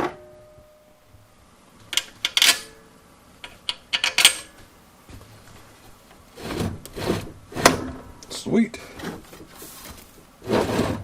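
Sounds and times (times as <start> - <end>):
metal tools clinking: 3.9 - 4.6.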